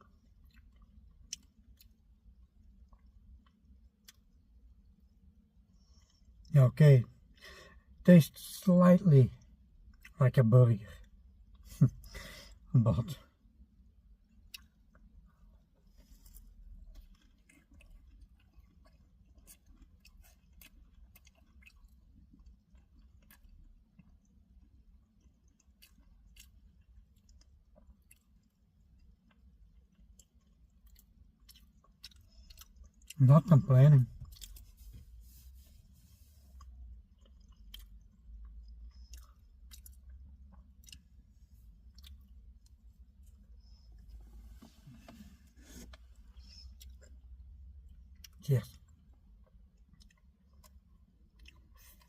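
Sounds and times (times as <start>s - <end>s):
person chewing: 0.0s - 4.4s, 14.2s - 52.0s
low steady hum: 0.0s - 52.0s.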